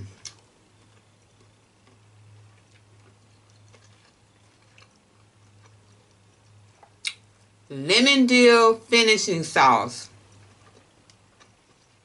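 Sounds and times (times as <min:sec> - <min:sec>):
quiet chewing of food: 0:00.0 - 0:07.7, 0:10.1 - 0:12.0
steady low hum: 0:00.0 - 0:12.0.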